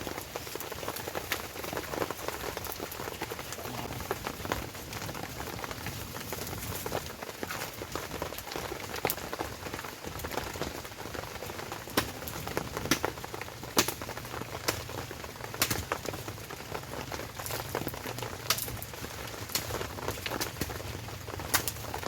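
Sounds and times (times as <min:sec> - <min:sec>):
heavy rain on a tent: 0:00.0 - 0:22.0.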